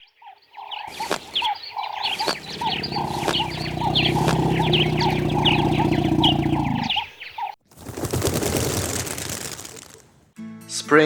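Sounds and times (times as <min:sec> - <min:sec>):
small birds chirping: 0:00.7 - 0:07.4
loud low buzzing drone: 0:02.1 - 0:06.9.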